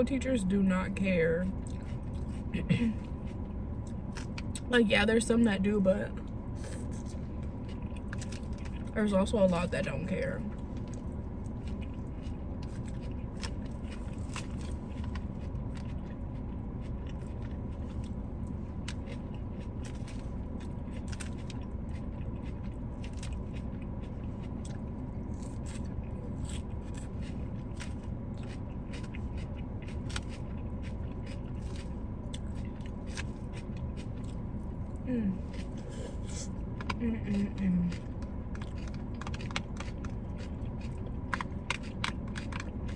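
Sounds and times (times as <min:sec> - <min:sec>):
steady low hum: 0:00.0 - 0:42.9
chewing and biting: 0:01.5 - 0:04.7, 0:06.2 - 0:42.9
small crunches and clicks: 0:37.9 - 0:42.9.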